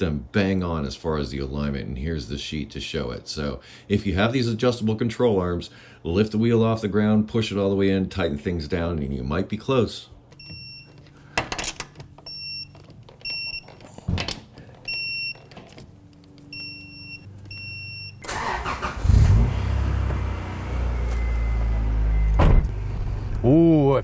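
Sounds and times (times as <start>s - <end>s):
car engine starting and idling: 18.2s - 23.6s.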